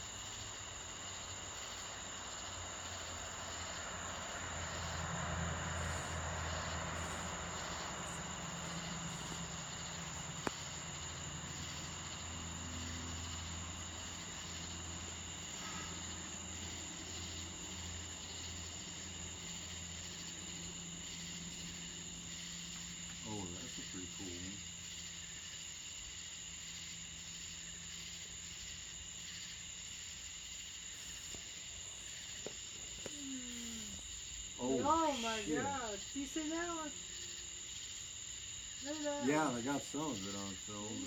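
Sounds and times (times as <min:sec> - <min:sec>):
insects chirring: 0:00.0 - 0:41.0.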